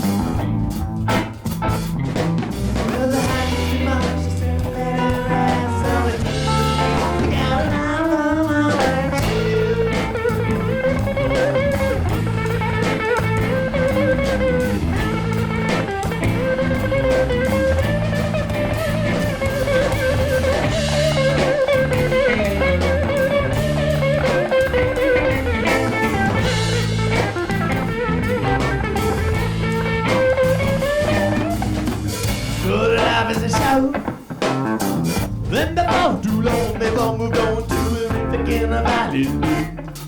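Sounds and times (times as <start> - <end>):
electric guitar lead: 0.0 - 40.0
live blues rock band: 0.0 - 40.0.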